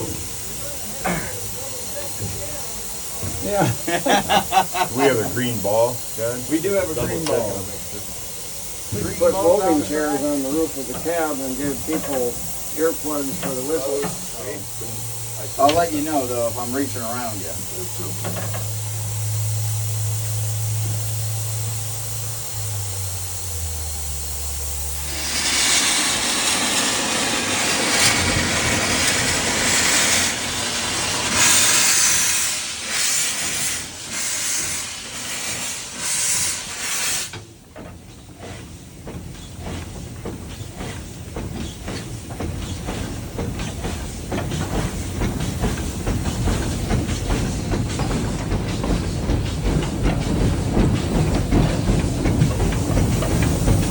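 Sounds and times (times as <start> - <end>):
locomotive clanks and chuffs: 0.0 - 53.9
steam hissing: 0.0 - 53.9
low drone: 21.7 - 31.3.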